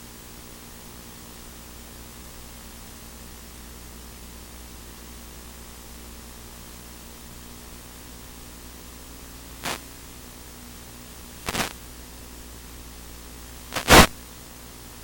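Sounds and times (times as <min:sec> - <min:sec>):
steady static hiss: 0:00.0 - 0:15.0
faint hum: 0:00.9 - 0:15.0
loud bursts of static: 0:09.5 - 0:10.1, 0:11.3 - 0:11.8, 0:13.7 - 0:14.2.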